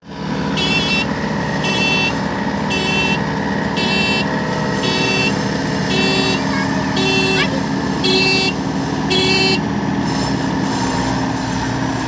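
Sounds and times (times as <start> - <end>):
diesel engine running: 0.0 - 12.0
electronic warning beeps: 0.6 - 3.2, 3.8 - 9.6.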